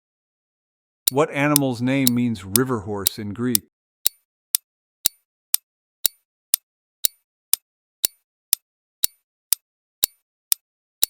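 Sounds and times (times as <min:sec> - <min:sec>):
countdown timer ticking: 0:01.1 - 0:05.2.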